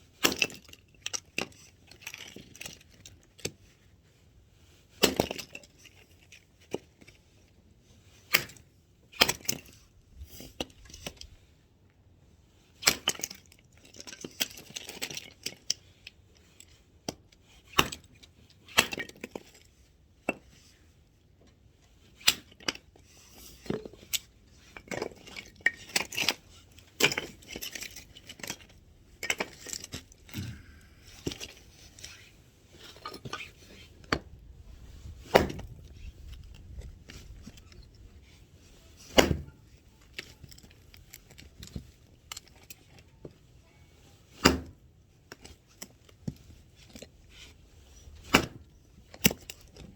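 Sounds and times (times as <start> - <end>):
axe chopping wood: 35.3 - 35.7, 39.1 - 39.5.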